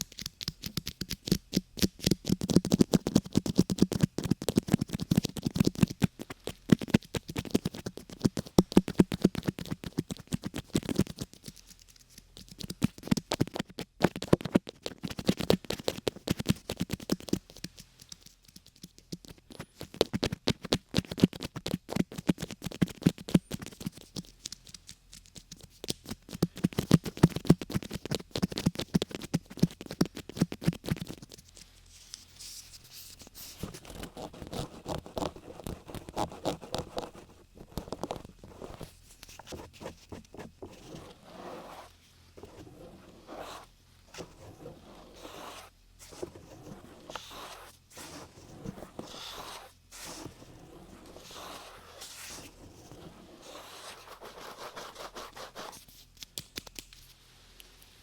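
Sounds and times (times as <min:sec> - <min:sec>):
scratching and scraping: 0:32.0 - 0:55.8.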